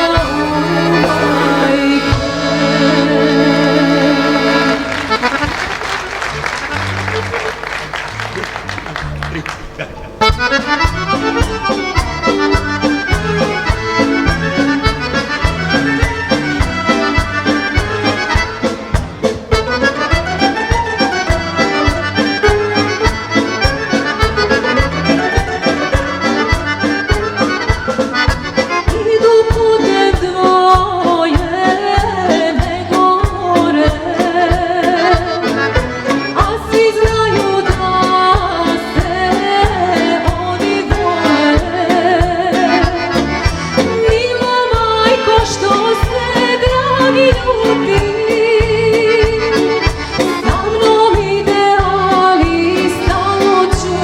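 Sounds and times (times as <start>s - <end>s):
woman singing with vibrato: 0.0s - 5.2s, 28.8s - 35.6s, 36.2s - 54.0s
folk band with accordion: 0.0s - 54.0s.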